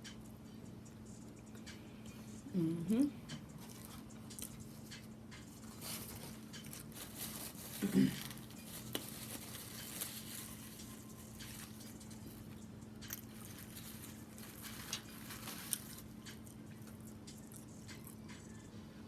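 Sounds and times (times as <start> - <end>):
faint steady hum: 0.0 - 19.0
person chewing food: 3.3 - 18.6.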